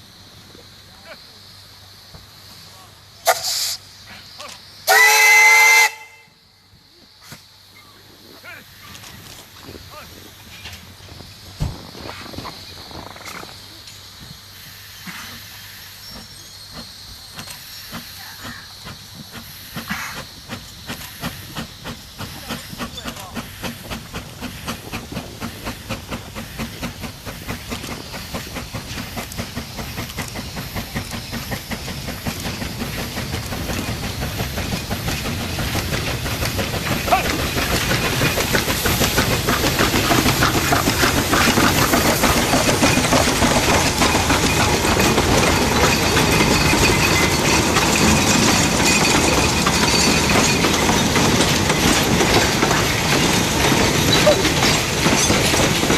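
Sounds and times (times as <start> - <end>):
steam locomotive chuffing: 0.0 - 55.9
clacking train wheels: 8.8 - 55.9
rattling wagons: 16.0 - 55.9.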